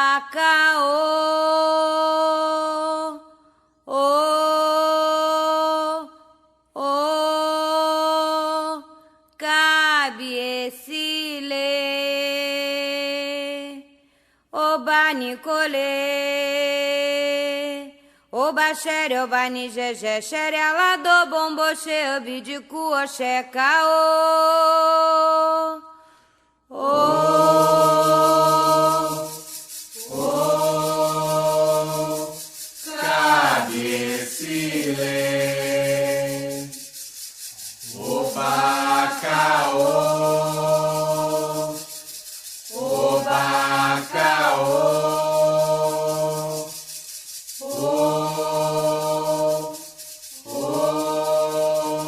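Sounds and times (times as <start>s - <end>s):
voices singing a chant: 26.7s - 52.0s
fast rattling rhythm: 27.2s - 52.0s.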